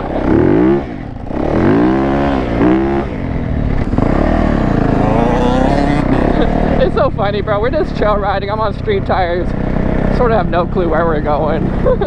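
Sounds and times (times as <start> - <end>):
dirt bike engine revving: 0.0 - 7.1.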